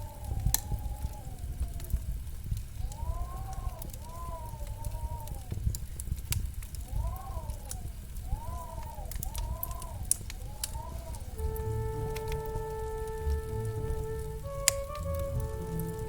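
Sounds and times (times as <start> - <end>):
fireplace crackling and popping: 0.0 - 16.0
soft rising and falling tones: 11.4 - 16.0.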